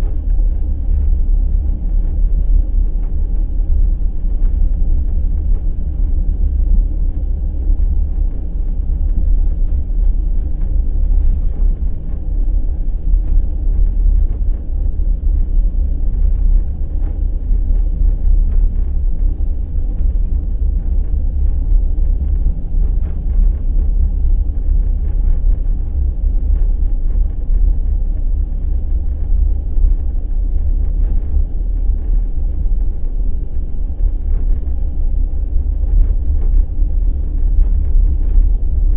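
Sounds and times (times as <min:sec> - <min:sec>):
train wheels rumbling on rails: 0:00.0 - 0:38.9
faint irregular clicks: 0:21.1 - 0:33.2.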